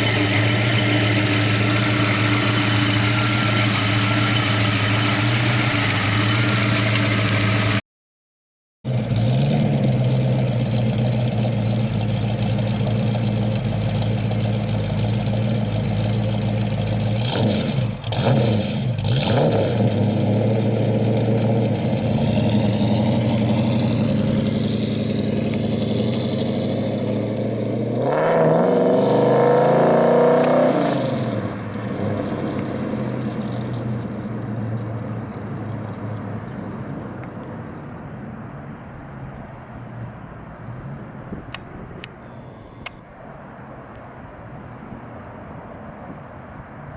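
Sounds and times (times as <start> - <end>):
car engine running: 0.0 - 7.8, 8.9 - 28.0.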